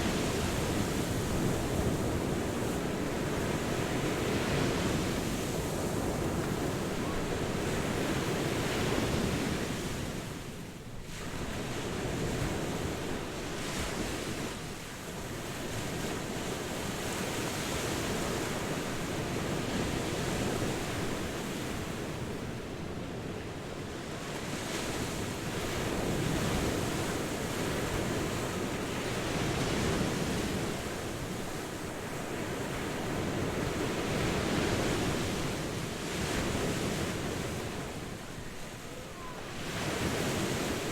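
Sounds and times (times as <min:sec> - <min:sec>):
ocean waves washing onto shore: 0:00.0 - 0:40.9.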